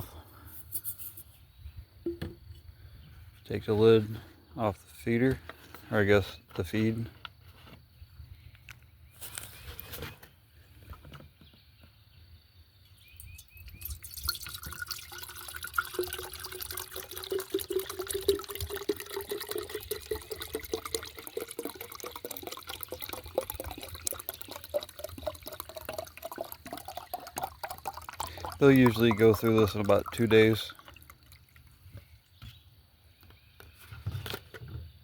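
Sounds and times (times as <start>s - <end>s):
liquid pouring into a jar: 12.9s - 32.4s.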